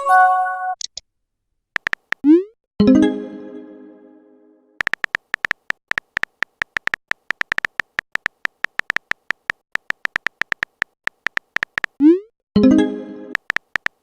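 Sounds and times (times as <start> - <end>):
short electronic typing beeps: 1.8 - 2.5, 4.8 - 12.3.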